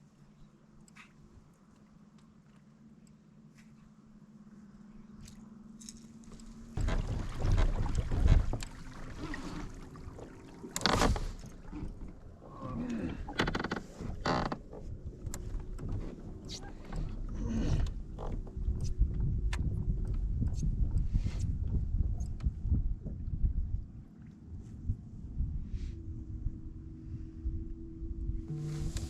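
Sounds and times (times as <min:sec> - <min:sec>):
water splashing on a kayak: 0:06.3 - 0:21.9
wind buffeting microphone: 0:06.8 - 0:10.3, 0:15.0 - 0:29.0.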